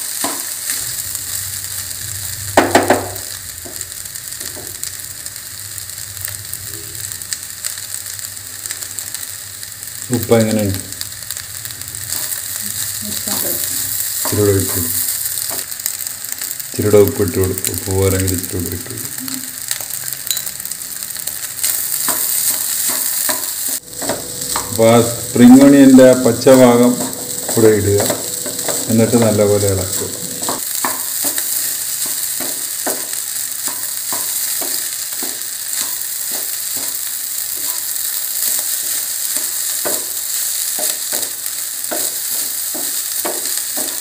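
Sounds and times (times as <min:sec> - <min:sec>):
rice sizzling in a pan: 0:00.0 - 0:44.0
spatula scraping and tapping pan: 0:22.0 - 0:37.0, 0:40.8 - 0:44.0.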